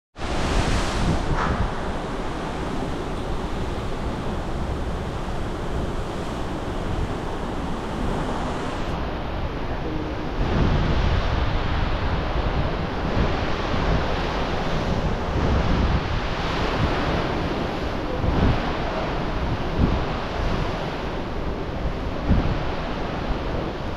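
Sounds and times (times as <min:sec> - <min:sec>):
wind on microphone: 0:00.2 - 0:09.0
sea waves washing: 0:00.2 - 0:09.1.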